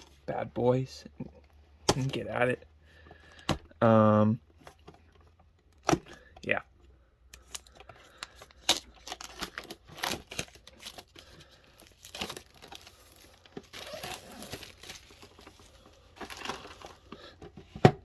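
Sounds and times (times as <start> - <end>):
plastic wrap crinkling: 7.4 - 17.3.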